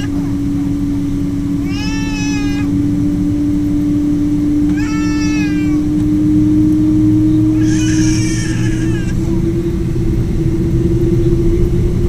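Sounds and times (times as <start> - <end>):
aircraft drone: 0.0 - 12.0
cat meowing: 1.6 - 2.7, 4.7 - 5.9, 7.6 - 9.2.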